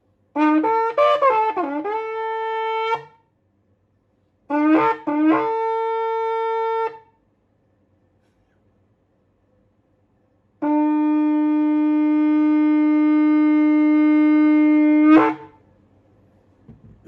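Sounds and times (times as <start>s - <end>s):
shofar blown in long note: 0.4s - 3.2s, 4.5s - 7.1s, 10.6s - 15.6s.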